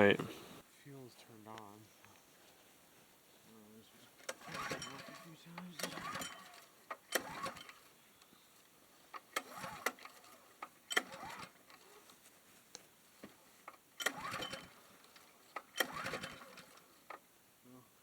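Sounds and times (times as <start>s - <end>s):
recoil pull-starter whirring: 4.2s - 7.9s, 9.1s - 12.0s, 13.7s - 17.2s
small engine cranking: 4.2s - 8.0s, 9.1s - 12.1s, 13.7s - 17.3s.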